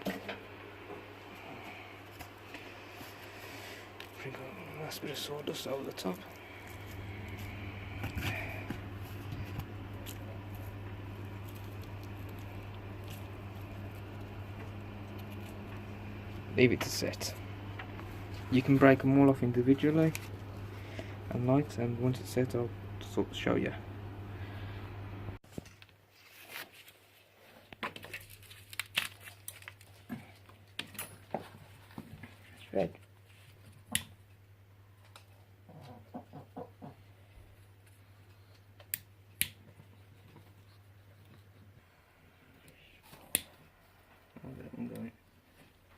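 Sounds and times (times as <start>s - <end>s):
steady low hum: 0.0s - 25.4s
sawdust pattering and scratching: 4.0s - 22.6s.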